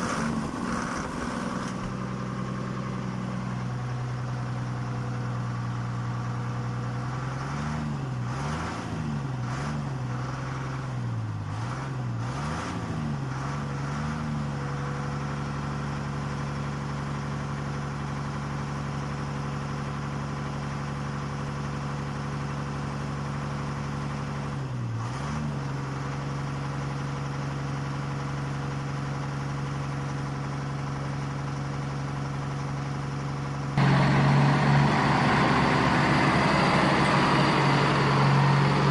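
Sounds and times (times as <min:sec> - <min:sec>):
truck engine humming: 0:00.0 - 0:08.4, 0:30.1 - 0:38.9.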